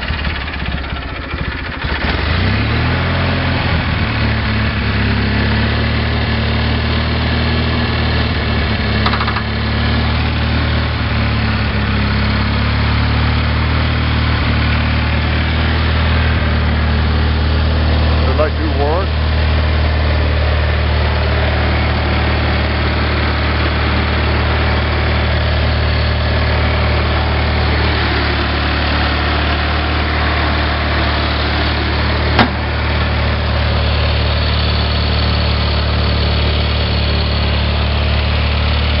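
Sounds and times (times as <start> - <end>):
garden tractor engine idling: 0.0 - 39.0.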